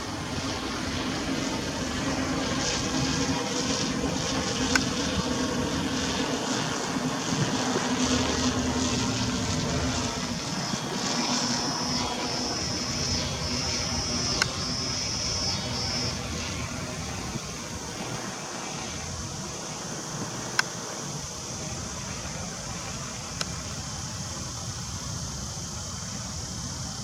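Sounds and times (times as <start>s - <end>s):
high-pitched buzz: 0.0s - 20.6s
motor droning: 0.0s - 24.7s
outdoor noise: 0.0s - 27.0s.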